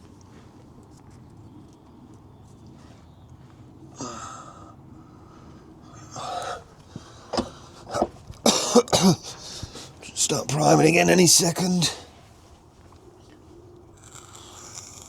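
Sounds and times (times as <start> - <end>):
heavy breaths out: 2.8 - 10.1.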